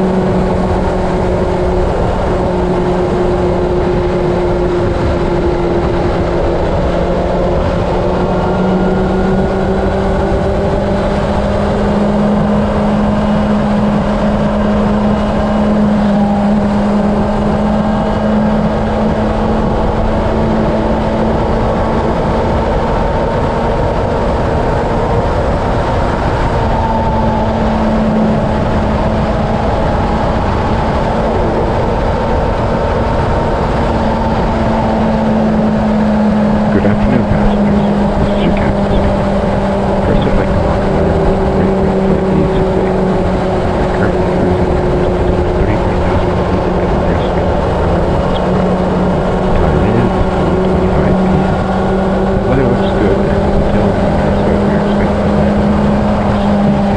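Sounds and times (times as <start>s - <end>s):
engine drone: 0.0s - 56.9s.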